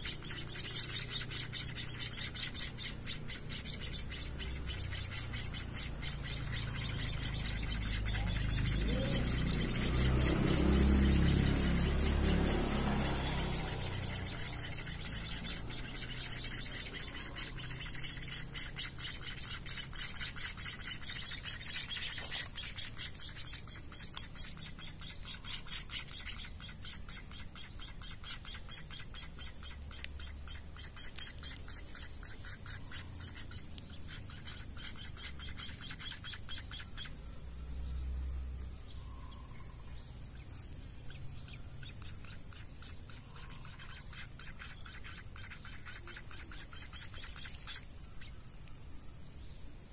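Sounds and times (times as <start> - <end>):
short bird peeps: 0.0 - 37.2, 39.1 - 49.2
nestling birds chirping: 0.0 - 49.9.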